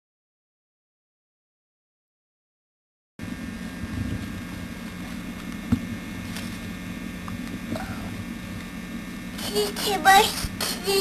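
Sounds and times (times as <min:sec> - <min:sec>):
low electrical hum: 0:03.2 - 0:11.0
tape hiss: 0:03.2 - 0:11.0.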